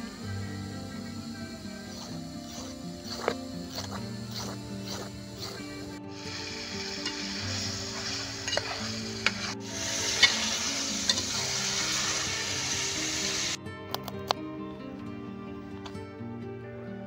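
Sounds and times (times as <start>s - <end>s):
curry sizzling in a pan: 0.0s - 13.6s
metal spoon scraping a pan: 1.9s - 13.6s.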